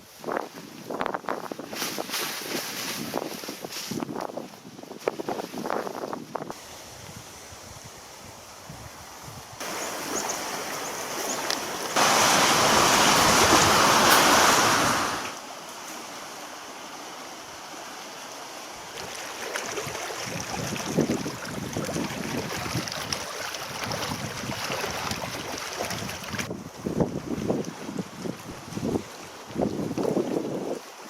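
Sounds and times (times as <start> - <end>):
wind on microphone: 0.0 - 10.6, 11.3 - 15.3, 19.0 - 31.0
waves washing on lake: 6.5 - 31.0.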